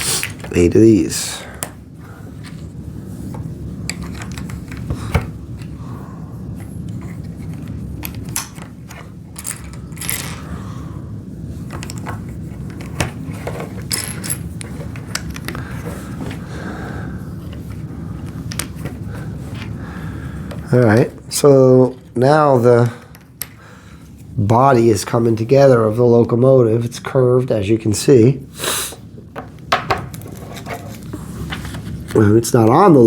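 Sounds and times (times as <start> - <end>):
low background hum: 0.0 - 33.0.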